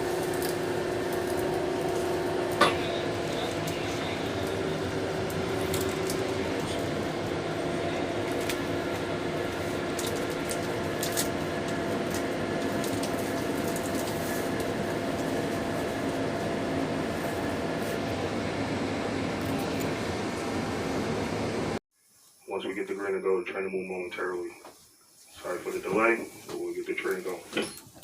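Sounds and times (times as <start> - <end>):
subway car hum and hiss: 0.0 - 27.5.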